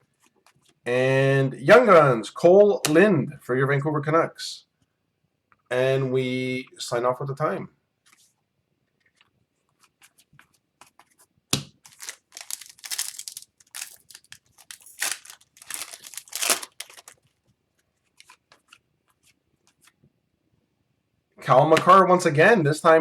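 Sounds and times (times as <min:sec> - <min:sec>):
wrapper tearing and crinkling: 0:11.8 - 0:17.3.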